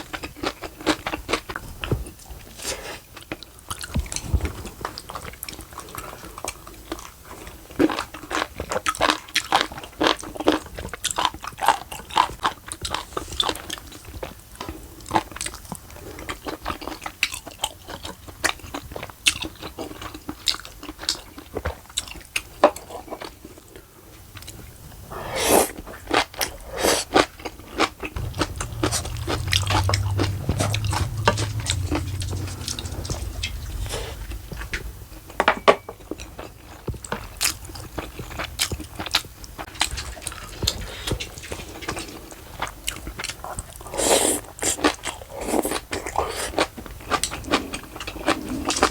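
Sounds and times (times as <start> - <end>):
low hum: 28.2 - 35.4.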